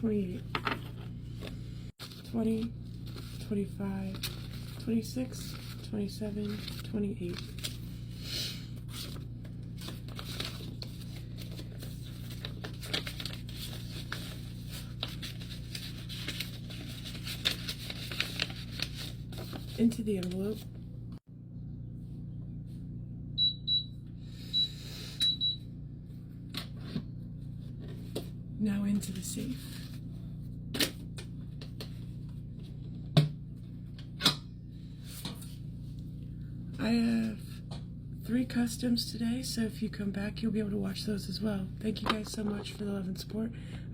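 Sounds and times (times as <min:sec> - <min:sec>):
low hum: 0:00.0 - 0:43.9
paper rustling: 0:02.0 - 0:08.0, 0:08.8 - 0:20.7.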